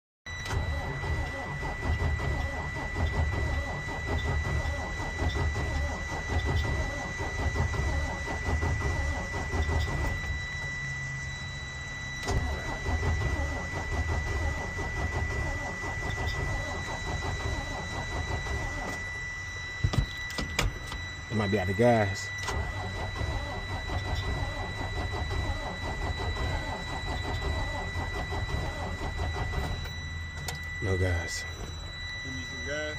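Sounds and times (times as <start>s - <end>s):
car engine cranking: 12.2s - 19.1s, 20.1s - 31.3s.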